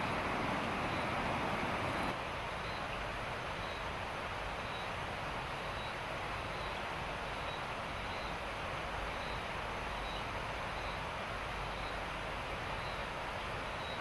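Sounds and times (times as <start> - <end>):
heavy rain hissing: 0.0 - 2.2
faint high chirp: 9.1 - 11.0, 13.7 - 14.0.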